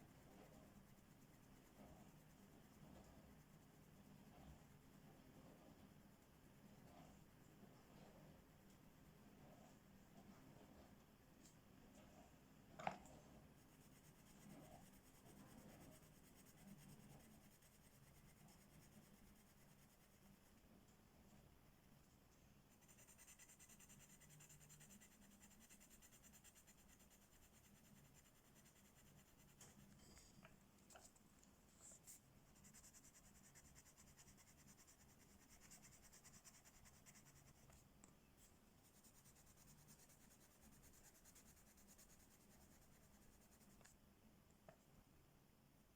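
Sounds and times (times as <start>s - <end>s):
colouring tool scratching paper: 13.7s - 20.4s, 22.7s - 29.8s, 31.8s - 37.8s, 38.8s - 43.9s.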